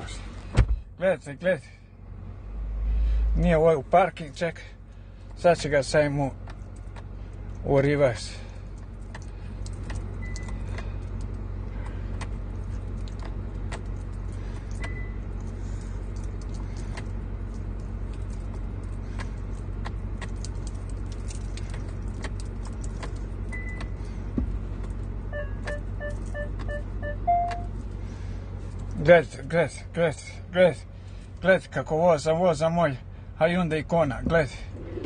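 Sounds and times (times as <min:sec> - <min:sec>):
car interior low hum: 0:00.0 - 0:35.0
light clicks and jingles: 0:06.4 - 0:25.2, 0:28.6 - 0:29.1
reversing sensor beeps: 0:14.8 - 0:15.2, 0:25.3 - 0:27.7.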